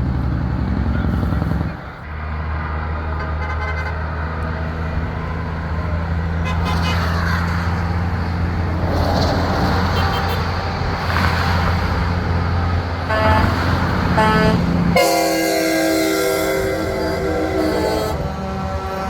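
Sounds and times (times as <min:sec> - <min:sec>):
truck engines droning: 0:00.0 - 0:19.0
truck air horn blasts: 0:03.2 - 0:04.1, 0:06.4 - 0:07.1, 0:09.8 - 0:10.7, 0:13.0 - 0:19.0.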